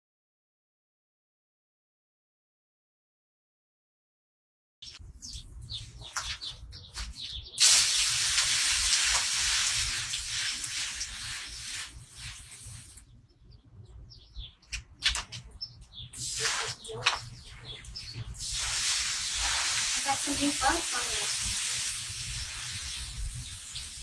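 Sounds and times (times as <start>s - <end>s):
birds chirping: 4.8s - 24.0s
hose spray nozzle hissing: 7.6s - 13.0s, 16.2s - 17.3s, 18.4s - 24.0s.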